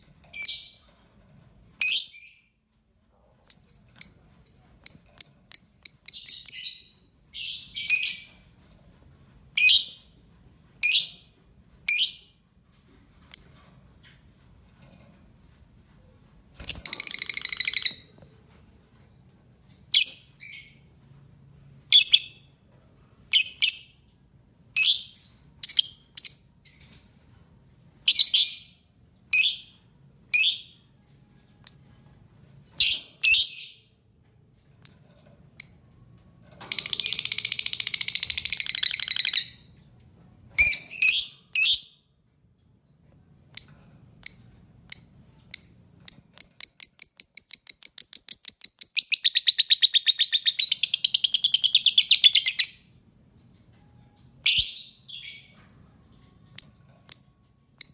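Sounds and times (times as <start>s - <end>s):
lovebird shrill chirps: 16.6s - 18.0s, 44.3s - 52.8s
lovebird chattering: 46.1s - 52.8s.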